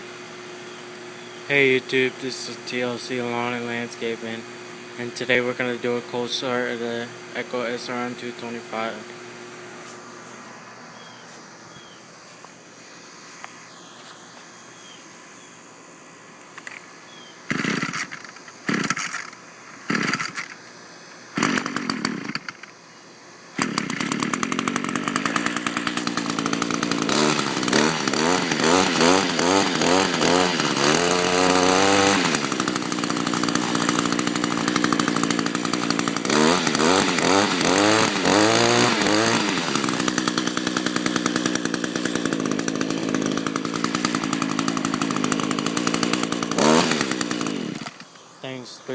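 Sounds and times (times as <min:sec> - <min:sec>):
two-stroke engine revving: 0:00.0 - 0:09.4, 0:17.5 - 0:20.6, 0:21.3 - 0:22.7, 0:23.5 - 0:48.1
string trimmer pull-start: 0:17.5 - 0:22.8, 0:23.5 - 0:48.1.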